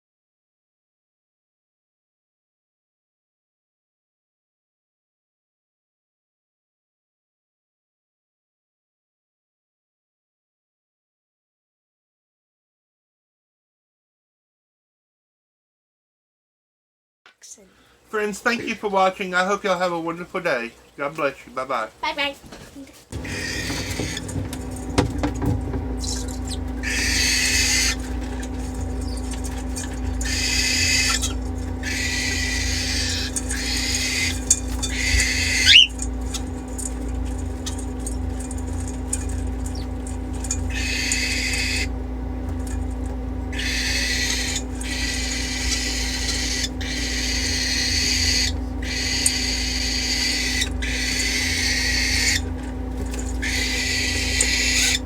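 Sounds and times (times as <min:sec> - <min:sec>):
steady low hum: 0:23.0 - 0:55.0
parrots screeching: 0:23.2 - 0:55.0.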